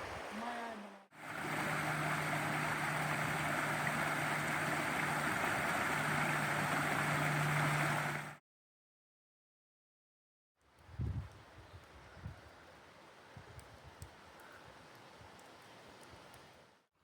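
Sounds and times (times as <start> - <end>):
stream water rushing: 0.0 - 8.4
low steady hum: 0.4 - 8.4.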